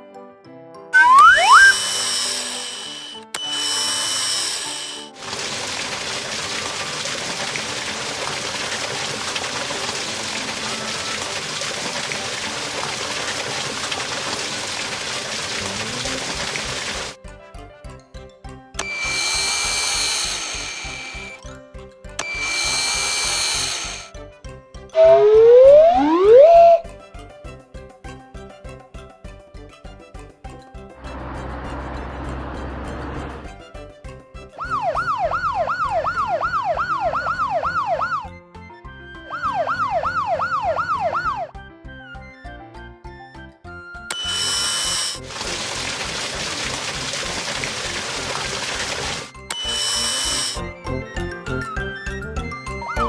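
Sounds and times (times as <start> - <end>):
cartoon siren yelping: 1.0 - 3.3, 25.0 - 26.9, 34.6 - 38.4, 39.2 - 41.5
cartoon power tool whir: 1.0 - 13.3, 13.9 - 17.2, 18.8 - 21.4, 22.2 - 24.1, 25.0 - 26.9, 44.1 - 45.8, 46.6 - 50.6.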